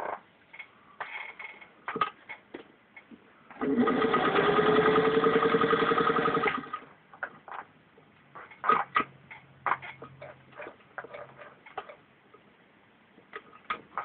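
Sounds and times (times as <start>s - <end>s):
sewing machine stitching: 3.5s - 6.8s.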